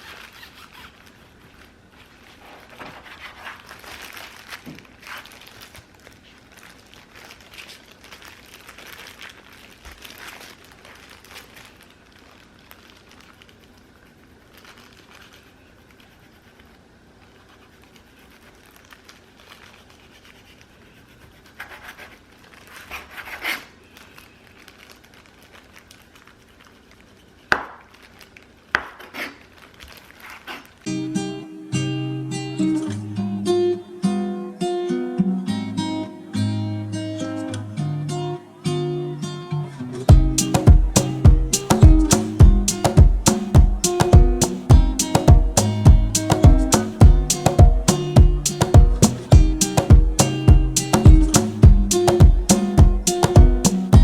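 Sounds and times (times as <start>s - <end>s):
rustling and scraping: 0.0s - 30.9s.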